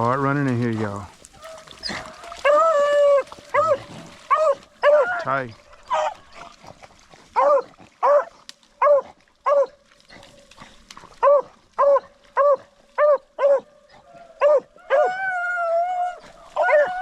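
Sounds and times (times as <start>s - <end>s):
dog barking: 3.5s - 5.2s, 5.9s - 6.2s, 7.4s - 9.8s, 11.2s - 15.2s.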